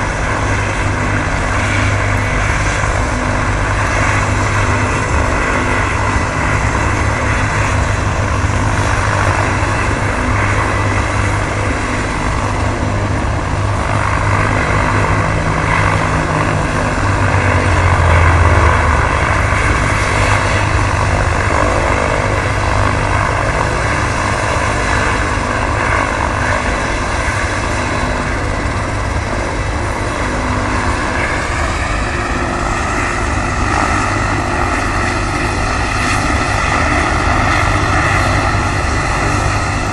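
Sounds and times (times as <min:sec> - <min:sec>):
helicopter rotor beat with whine: 0:00.0 - 0:39.9.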